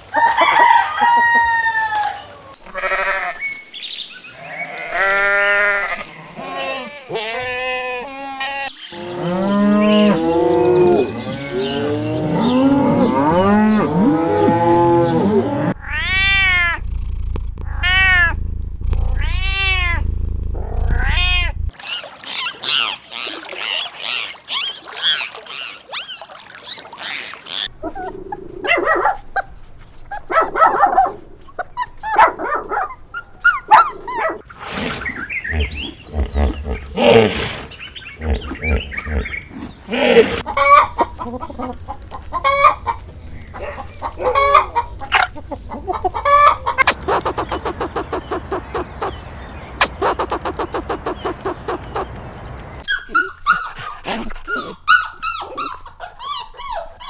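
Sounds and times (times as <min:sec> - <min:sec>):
high arching animal calls: 0:00.2 - 0:57.0
short bleat-like calls: 0:02.6 - 0:03.5, 0:04.4 - 0:08.7
deep drawn-out animal calls: 0:02.6 - 0:26.2, 0:27.0 - 0:53.8
low hum: 0:15.7 - 0:21.7.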